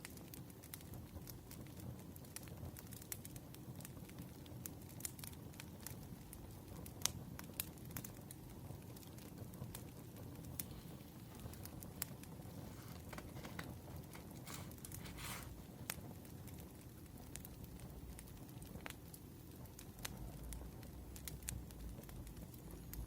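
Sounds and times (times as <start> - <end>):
firewood crackling: 0.0 - 23.0
brief rustle: 12.5 - 15.6.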